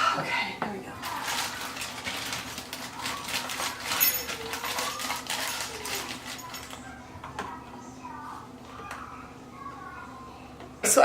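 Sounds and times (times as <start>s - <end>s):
metal tools clinking and rattling: 1.0s - 6.8s.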